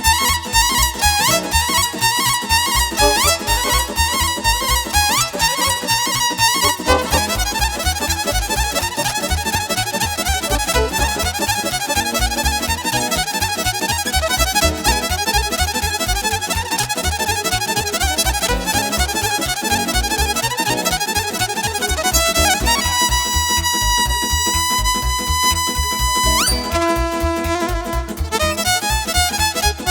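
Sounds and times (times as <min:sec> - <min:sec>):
fiddle playing fast runs: 0:00.0 - 0:29.9
steady bass beat: 0:00.0 - 0:29.9.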